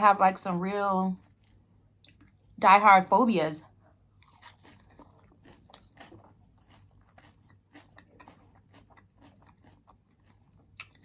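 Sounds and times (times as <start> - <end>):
chewing crunchy food: 3.9 - 11.0.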